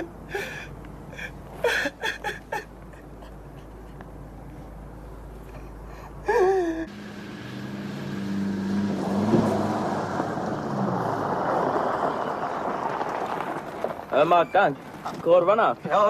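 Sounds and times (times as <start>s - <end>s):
person crying out: 6.2s - 6.9s
car passing: 6.8s - 16.0s.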